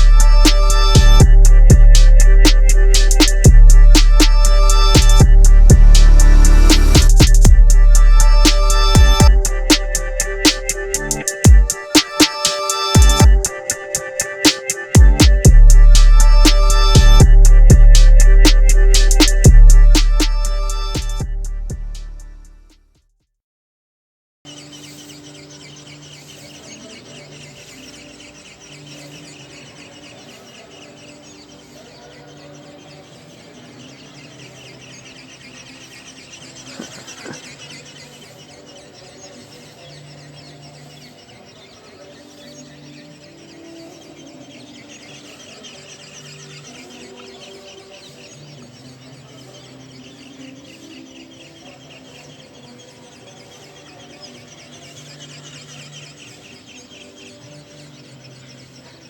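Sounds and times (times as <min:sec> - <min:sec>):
small birds chirping: 0:00.0 - 0:22.2, 0:24.5 - 0:59.0.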